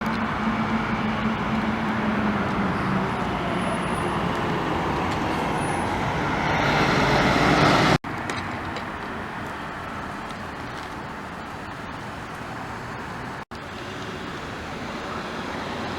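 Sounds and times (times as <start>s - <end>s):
loud vehicle passing: 0.0s - 8.0s, 13.6s - 15.9s
passing cars: 0.0s - 15.9s.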